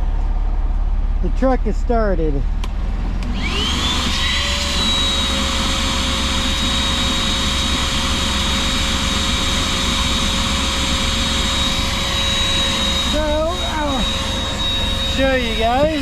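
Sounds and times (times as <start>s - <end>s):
diesel engine idling: 0.0s - 3.7s, 7.0s - 16.0s
shop vacuum motor whining: 2.6s - 16.0s.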